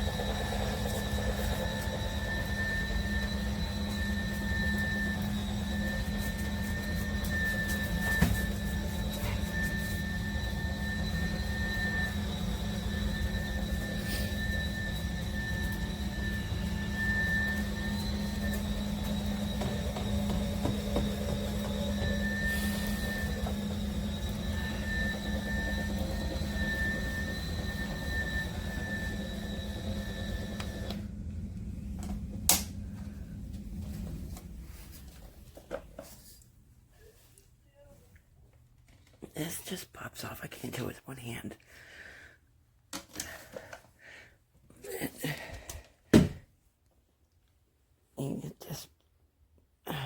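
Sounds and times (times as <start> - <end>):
spin mop humming and whining: 0.0 - 37.8.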